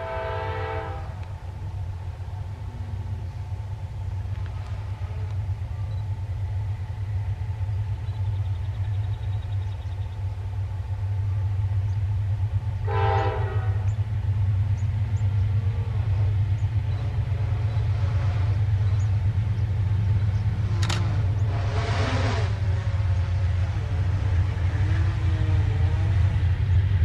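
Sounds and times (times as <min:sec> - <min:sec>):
train horn blast: 0:00.0 - 0:01.4, 0:04.5 - 0:05.5, 0:12.8 - 0:14.0, 0:20.7 - 0:26.4
train locomotive rumbling: 0:00.0 - 0:27.0.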